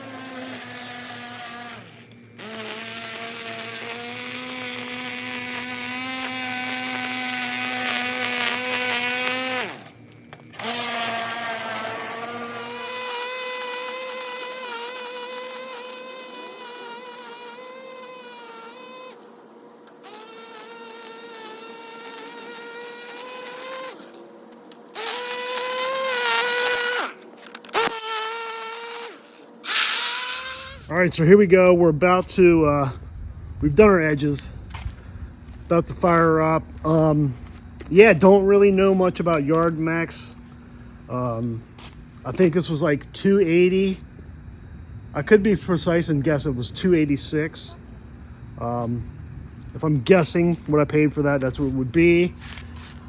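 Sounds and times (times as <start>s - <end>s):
lawn edger motor whining: 0.0s - 30.9s.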